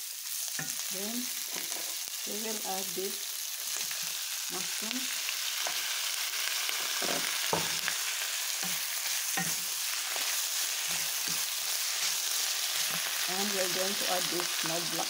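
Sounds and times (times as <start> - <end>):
food sizzling in a frying pan: 0.0 - 15.0
wooden spatula scraping a pan: 1.4 - 2.1, 8.6 - 13.2.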